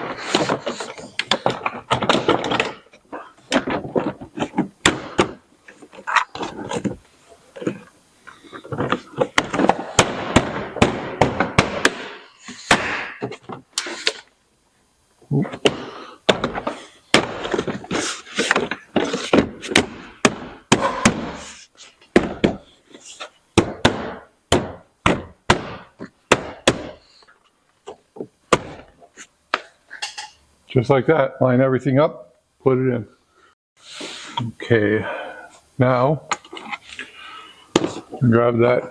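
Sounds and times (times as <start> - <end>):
plastic scraping and rubbing: 0.0 - 10.0, 16.3 - 19.8.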